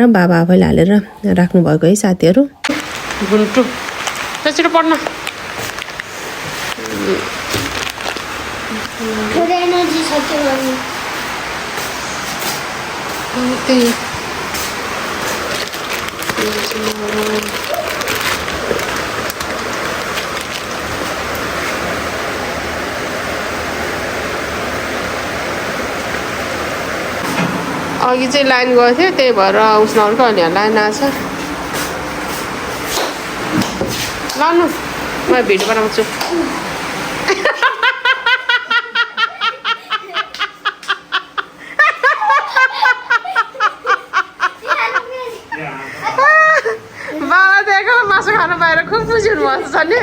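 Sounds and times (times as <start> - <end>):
heavy rain pouring: 2.7 - 40.4, 41.1 - 50.0
person laughing high-pitched: 37.3 - 47.3.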